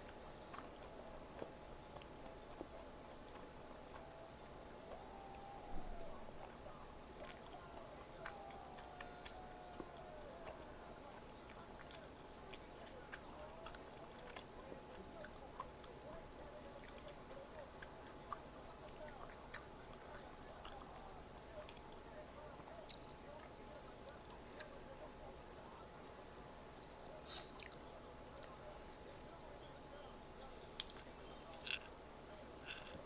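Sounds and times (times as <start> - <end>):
person chewing food: 0.0 - 4.6, 7.2 - 10.6, 11.4 - 20.9, 30.7 - 33.0.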